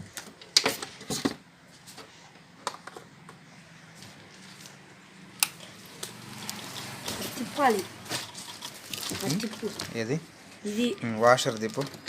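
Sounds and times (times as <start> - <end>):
plastic parts clicking and knocking: 11.3 - 12.0.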